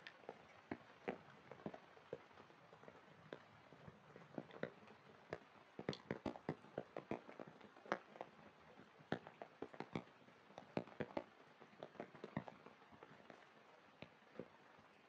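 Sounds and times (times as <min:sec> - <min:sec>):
faint rain hiss: 0:00.0 - 0:15.0
raindrops tapping: 0:00.0 - 0:15.0.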